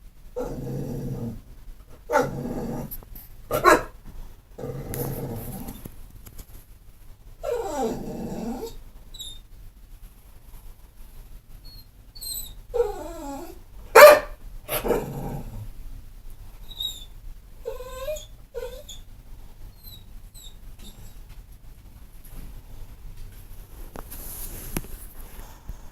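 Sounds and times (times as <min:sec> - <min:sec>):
dog whining: 0:02.0 - 0:02.9, 0:03.5 - 0:03.9, 0:07.4 - 0:09.4, 0:11.6 - 0:15.6, 0:16.6 - 0:19.1, 0:19.7 - 0:21.2
dog barking: 0:02.1 - 0:02.4, 0:03.5 - 0:04.0, 0:13.9 - 0:15.1.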